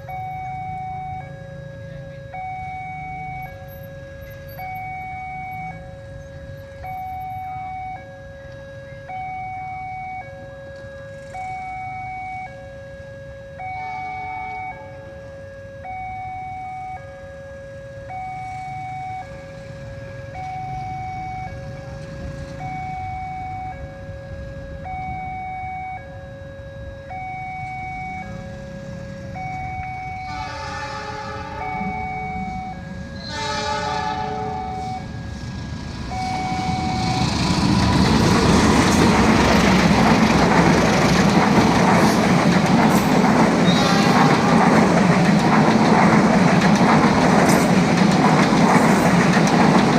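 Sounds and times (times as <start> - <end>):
two-tone crossing alarm ringing: 0.0 - 49.9
train horn: 13.1 - 15.9, 30.1 - 35.2, 43.5 - 45.0
train wheels clattering on rails: 35.7 - 49.9.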